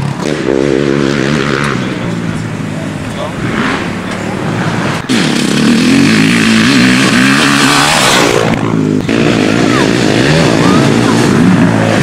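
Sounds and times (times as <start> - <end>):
motocross bike engine: 0.0 - 12.0.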